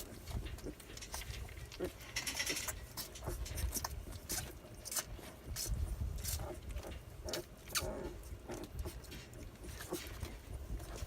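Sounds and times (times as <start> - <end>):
puppy squeaks: 7.7 - 8.1.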